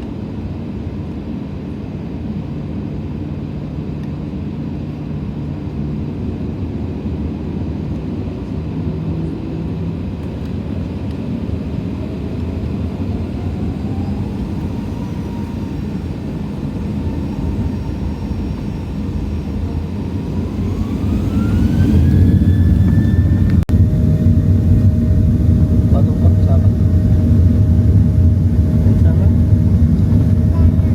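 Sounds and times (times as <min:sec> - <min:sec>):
jet engine rumble in cabin: 0:00.0 - 0:30.9
faint rising whine: 0:08.4 - 0:30.9.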